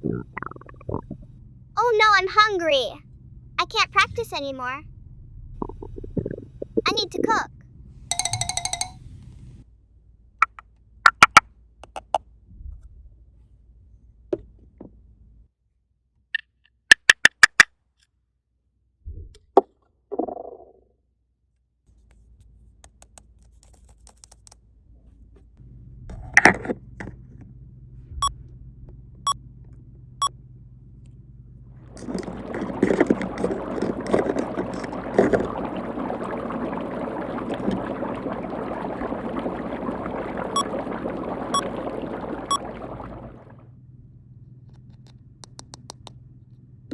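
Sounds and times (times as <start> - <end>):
plastic toy pieces clicking: 16.4 - 17.7
running water: 31.9 - 43.6.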